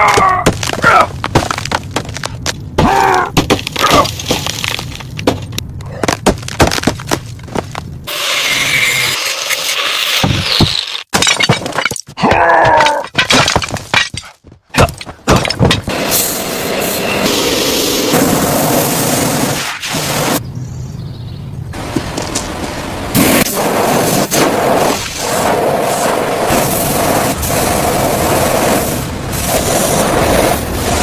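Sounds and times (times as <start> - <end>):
cracks knocks and clatters: 0.1 - 2.8, 3.4 - 8.0, 11.1 - 15.9
short squealing sounds: 8.1 - 11.1.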